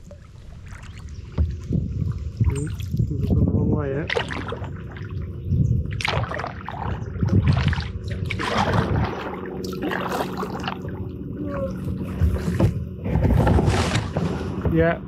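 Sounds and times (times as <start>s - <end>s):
paddle splashing in water: 0.0s - 3.1s, 4.0s - 14.8s
water dripping and gurgling: 0.0s - 3.3s, 4.0s - 12.0s.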